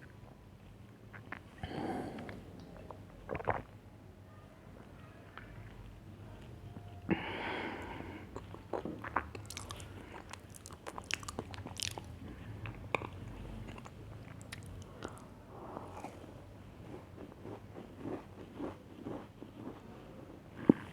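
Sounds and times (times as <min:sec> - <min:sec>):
crunchy chewing: 0:08.3 - 0:19.9.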